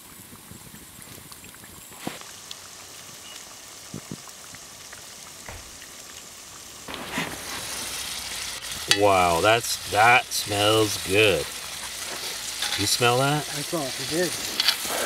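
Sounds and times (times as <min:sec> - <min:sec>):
food sizzling in oil: 0:00.0 - 0:15.0
sharp pops: 0:05.3 - 0:09.2.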